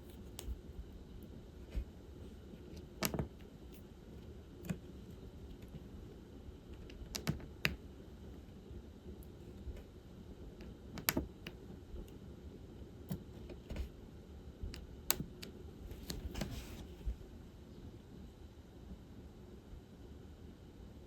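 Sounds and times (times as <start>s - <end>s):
drill pen clicking and tapping: 3.0s - 3.5s, 10.6s - 11.6s, 14.7s - 15.5s.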